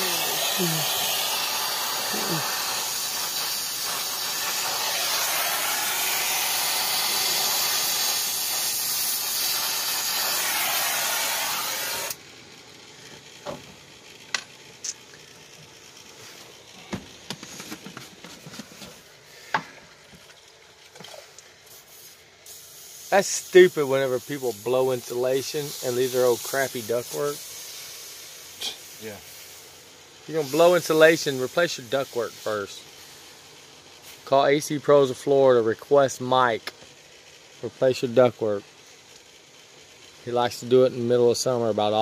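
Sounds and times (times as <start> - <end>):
torch flame hissing: 0.0 - 12.2, 21.6 - 42.0.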